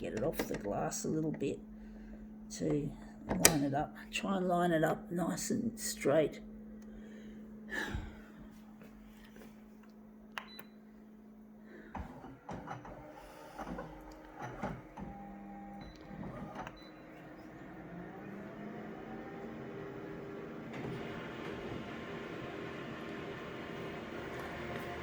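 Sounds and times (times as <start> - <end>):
photocopier clicks and whirrs: 0.0 - 1.4, 11.9 - 25.0
photocopier humming: 0.0 - 3.8, 11.7 - 25.0.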